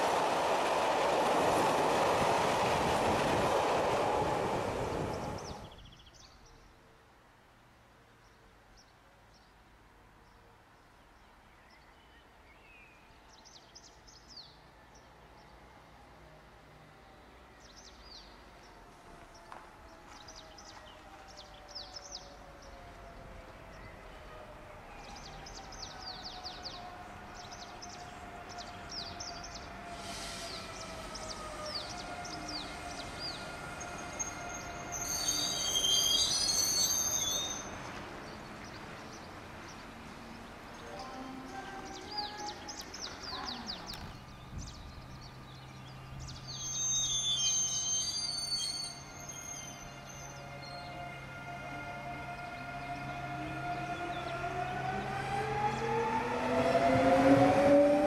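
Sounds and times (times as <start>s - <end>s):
train brakes squealing: 29.8s - 37.9s, 46.4s - 51.0s
small birds chirping: 36.2s - 46.8s.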